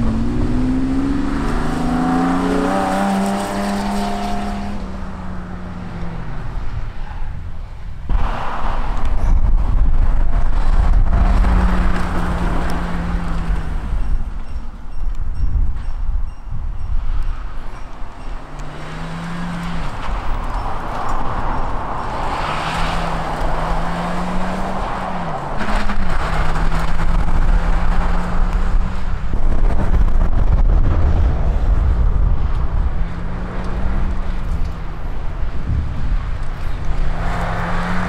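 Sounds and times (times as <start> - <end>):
car engine revving: 0.0 - 6.8, 9.9 - 14.4, 18.4 - 20.4, 22.0 - 38.0
tyre and road noise: 0.0 - 38.0.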